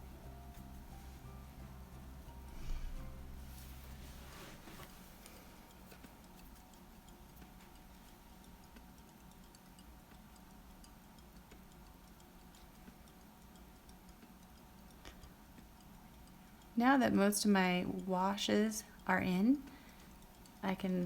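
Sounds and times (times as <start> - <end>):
small ticks: 4.8 - 21.0.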